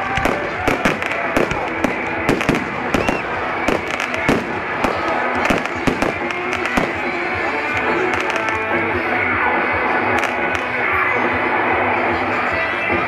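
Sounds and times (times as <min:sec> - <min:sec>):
fireworks bangs and crackles: 0:00.0 - 0:09.1, 0:09.8 - 0:10.9
background music: 0:00.0 - 0:13.0.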